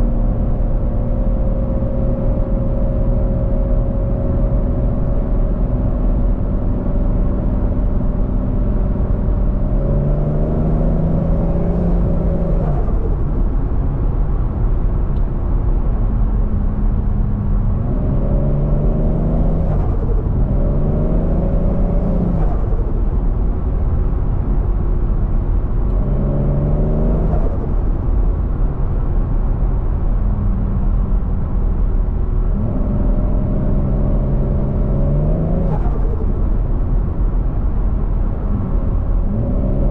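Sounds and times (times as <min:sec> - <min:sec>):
road rumble: 0:00.0 - 0:39.9
car engine revving: 0:09.5 - 0:13.4, 0:16.7 - 0:23.0, 0:25.9 - 0:28.0, 0:32.4 - 0:36.5, 0:38.4 - 0:39.9.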